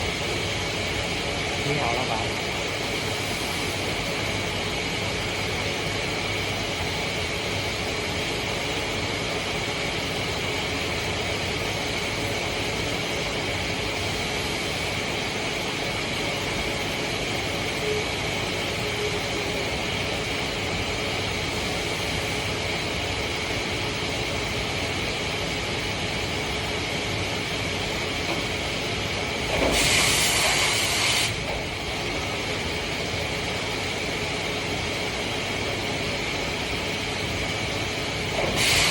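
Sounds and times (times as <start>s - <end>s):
machine humming and whining: 0.0s - 38.9s
loud hiss: 29.6s - 31.4s, 38.4s - 38.9s.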